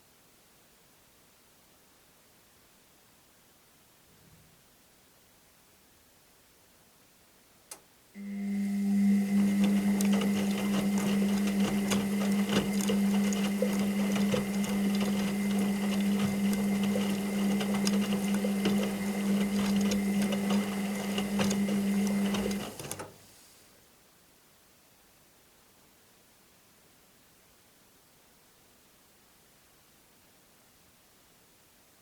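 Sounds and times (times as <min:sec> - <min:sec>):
washing machine motor hum: 0:08.2 - 0:23.2.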